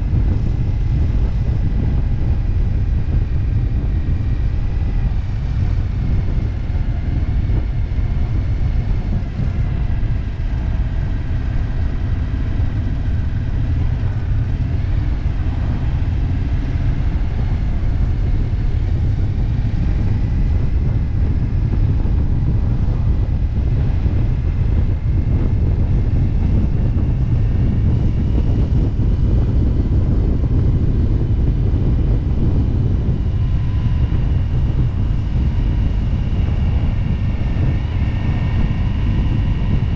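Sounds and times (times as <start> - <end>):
motorcycle engine drone: 0.0 - 39.9
wind rumble on microphone: 0.0 - 39.9.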